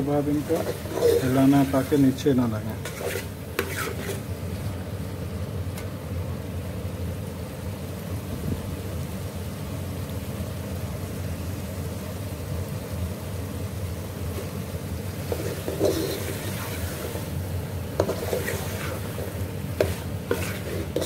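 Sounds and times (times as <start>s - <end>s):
food sizzling in pot: 0.0s - 21.0s
spoon scraping pot: 0.3s - 2.0s, 2.8s - 4.3s, 15.2s - 17.3s, 18.0s - 21.0s.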